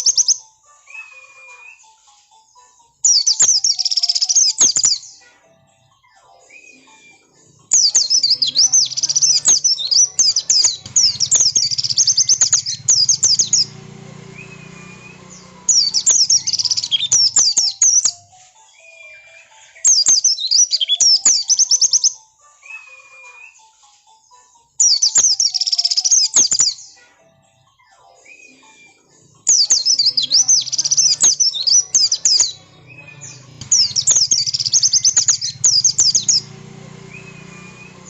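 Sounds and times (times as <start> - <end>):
high twittering bird chirps: 0.0 - 1.8, 3.0 - 5.2, 6.0 - 23.8, 24.8 - 27.0, 27.8 - 38.0
swooping whistled bird notes: 7.7 - 23.6, 29.5 - 38.0.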